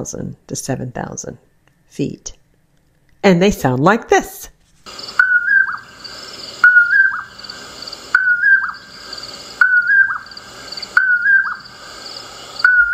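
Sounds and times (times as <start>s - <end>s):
bird whistling two-note call: 5.2s - 5.8s, 6.6s - 7.2s.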